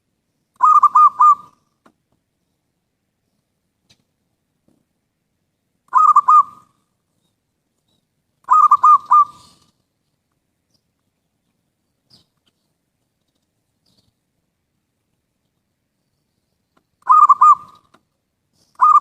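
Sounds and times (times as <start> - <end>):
dove cooing: 0.6 - 1.7, 5.9 - 6.8, 8.4 - 9.7, 17.0 - 17.9, 18.8 - 19.0.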